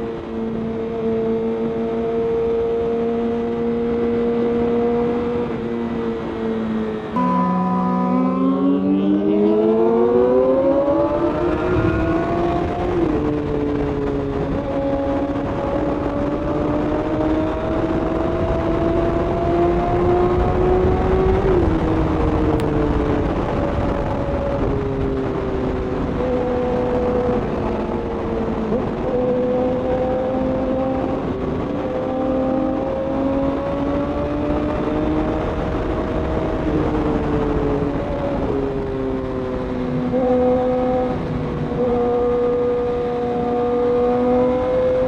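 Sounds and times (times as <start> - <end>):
wind on microphone: 9.0 - 45.0.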